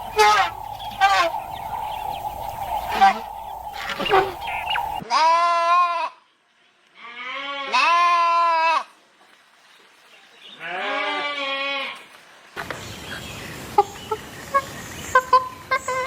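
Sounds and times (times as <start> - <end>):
steady outdoor hiss: 0.0 - 5.0, 11.8 - 16.0
long wavering bleats: 10.6 - 12.0.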